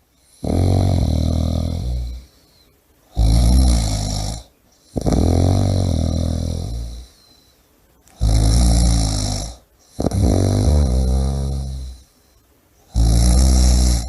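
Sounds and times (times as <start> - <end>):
person snoring loudly: 0.3 - 2.3, 3.1 - 7.1, 8.2 - 12.0, 12.9 - 14.0.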